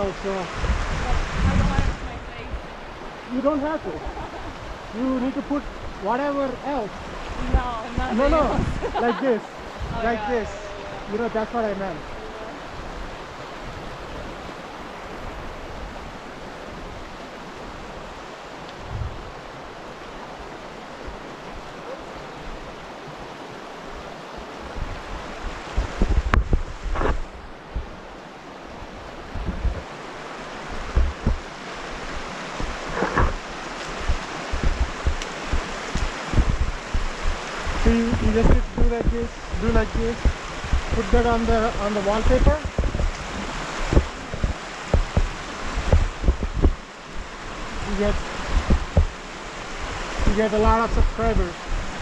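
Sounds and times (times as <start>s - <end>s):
creek water rushing: 0.0s - 52.0s
gusts thumping the mic: 0.6s - 2.7s, 7.2s - 10.6s, 18.8s - 19.4s, 24.6s - 28.0s, 29.3s - 29.9s, 30.7s - 52.0s.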